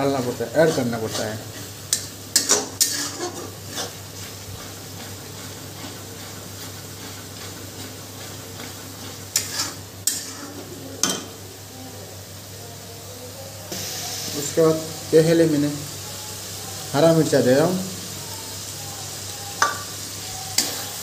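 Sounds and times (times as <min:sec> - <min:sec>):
paste sizzling in a pan: 0:00.0 - 0:12.7, 0:13.5 - 0:21.0
metal spatula scraping a pan: 0:00.2 - 0:11.2.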